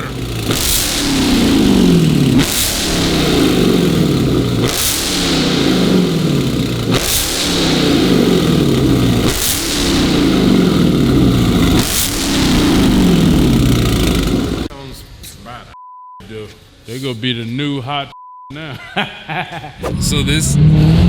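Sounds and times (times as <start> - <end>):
car engine revving: 0.0 - 14.7, 19.8 - 21.0.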